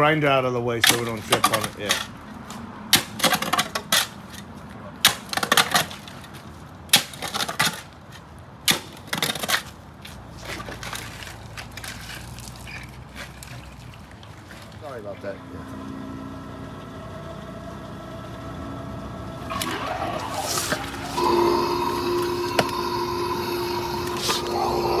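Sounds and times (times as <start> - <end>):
low steady hum: 19.2 - 25.0.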